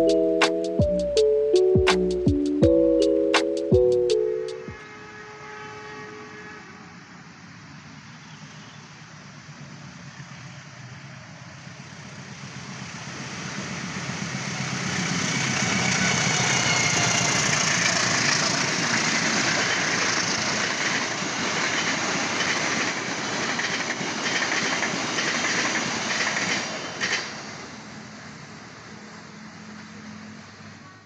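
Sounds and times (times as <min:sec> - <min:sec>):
diesel locomotive passing: 0:09.8 - 0:30.9
rhythmic wheel clatter over rails: 0:12.6 - 0:27.7.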